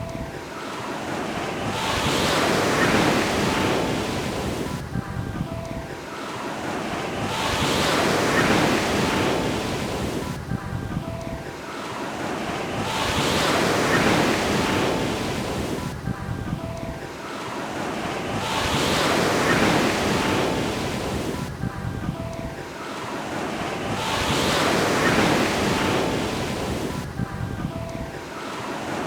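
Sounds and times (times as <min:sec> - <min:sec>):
ocean waves breaking: 0:00.0 - 0:29.0.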